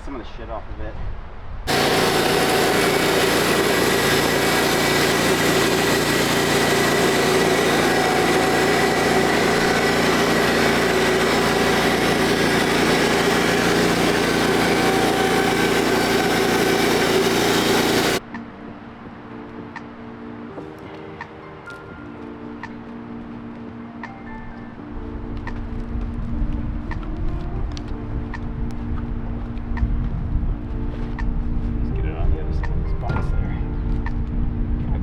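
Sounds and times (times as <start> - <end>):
small gasoline engine running: 1.7 - 18.2.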